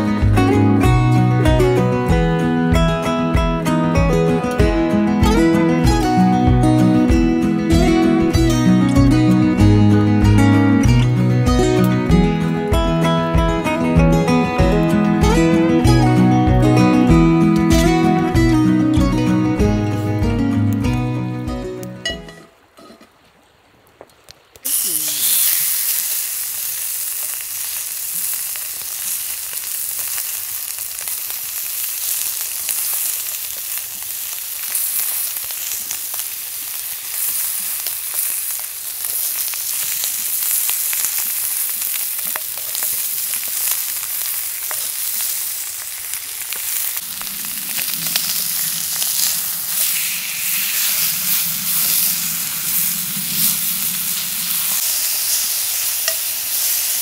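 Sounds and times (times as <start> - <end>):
food sizzling in a hot pan: 24.6 - 57.0
low hum: 47.0 - 54.8.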